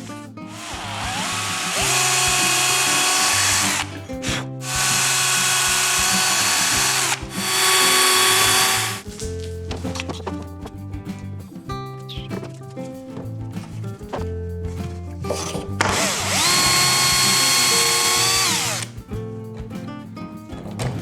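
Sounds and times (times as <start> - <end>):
power drill screwing into wood: 0.5 - 9.0, 15.8 - 19.0.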